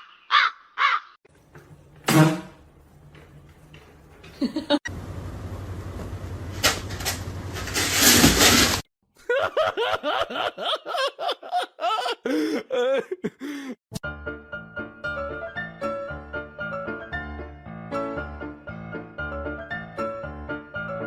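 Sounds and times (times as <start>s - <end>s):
people laughing: 9.2s - 13.7s.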